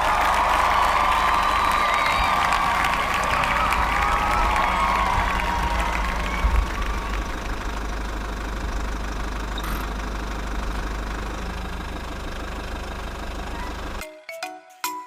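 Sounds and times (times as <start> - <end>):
small engine rumbling: 0.0 - 14.0.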